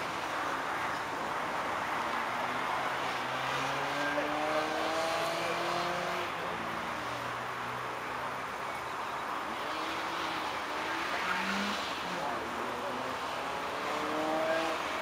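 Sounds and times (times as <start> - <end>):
distant car engine accelerating: 3.2 - 6.3, 9.6 - 15.0.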